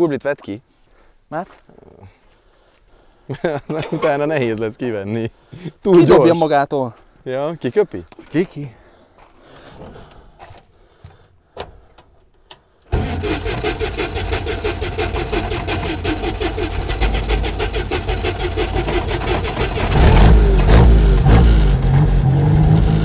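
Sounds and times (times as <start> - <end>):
engine starting and running: 12.9 - 23.0.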